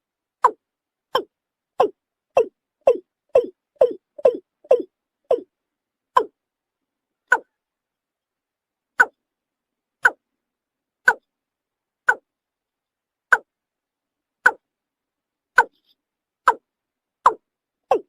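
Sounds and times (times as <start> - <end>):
bird calling hollow notes: 0.4 - 5.5, 6.1 - 6.4, 17.2 - 18.0.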